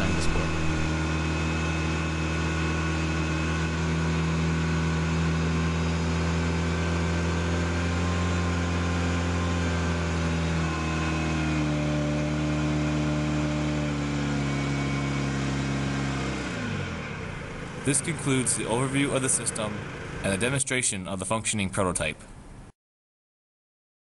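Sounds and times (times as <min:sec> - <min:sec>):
car engine idling: 0:00.0 - 0:01.4, 0:17.1 - 0:20.6.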